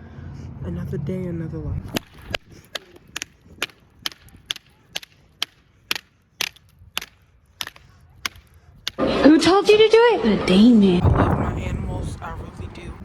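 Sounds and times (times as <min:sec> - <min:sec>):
sharp knocks: 0:01.9 - 0:09.0.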